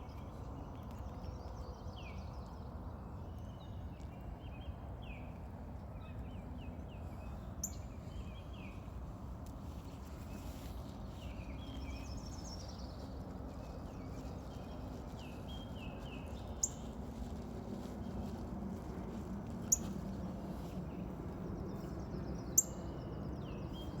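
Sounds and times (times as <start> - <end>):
low background noise: 0.0 - 24.0
small birds chirping: 5.9 - 9.0, 9.6 - 24.0.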